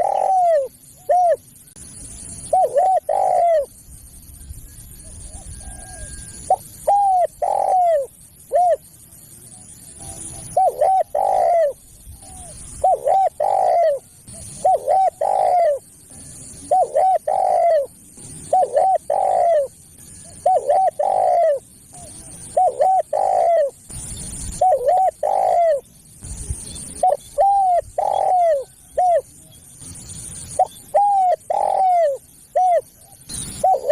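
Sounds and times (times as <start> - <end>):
dove cooing: 0.0 - 1.5, 2.4 - 3.8, 4.8 - 8.9, 9.5 - 23.8, 24.5 - 25.9, 27.0 - 29.5, 30.5 - 33.9.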